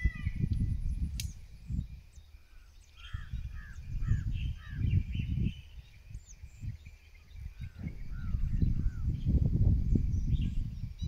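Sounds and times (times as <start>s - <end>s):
bird calling: 0.0s - 0.6s, 1.2s - 9.1s
wind buffeting the microphone: 0.0s - 11.0s
sharp click: 0.5s - 1.4s.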